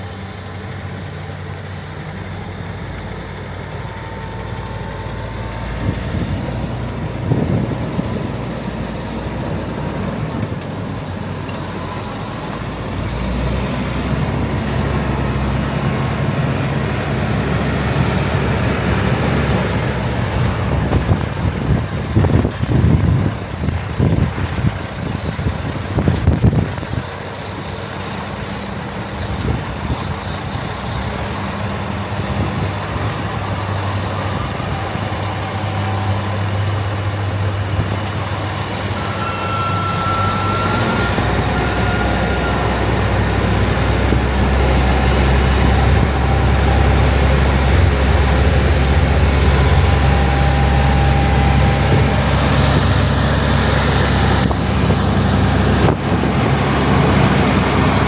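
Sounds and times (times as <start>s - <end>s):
diesel machinery engine drone: 0.0s - 58.0s
short high whine: 38.4s - 46.2s.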